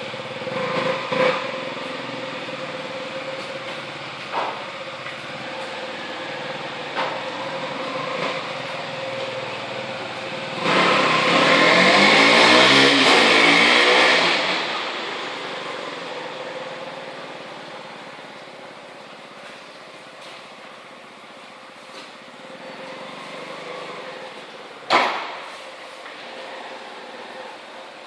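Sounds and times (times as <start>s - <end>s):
motorcycle engine revving: 0.0s - 18.2s.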